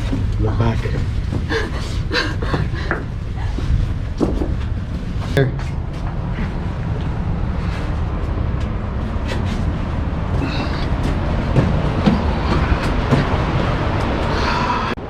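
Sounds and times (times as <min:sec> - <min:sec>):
wind buffeting microphone: 0:00.0 - 0:15.0
ocean surf washing: 0:05.8 - 0:15.0.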